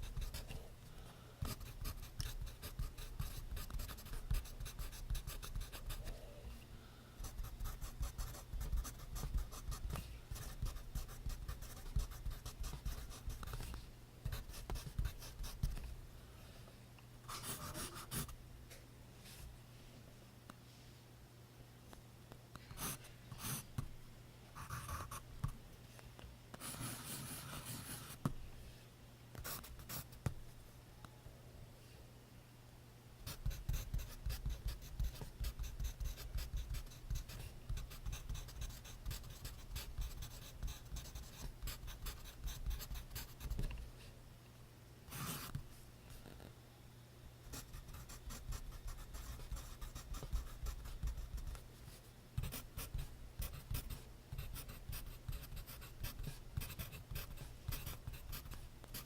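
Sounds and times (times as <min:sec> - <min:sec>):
pencil scratching on paper: 0:01.4 - 0:06.1, 0:07.2 - 0:13.7, 0:17.3 - 0:18.3, 0:26.6 - 0:28.2, 0:33.3 - 0:43.6, 0:45.1 - 0:45.6, 0:47.5 - 0:51.6, 0:52.4 - 0:59.0.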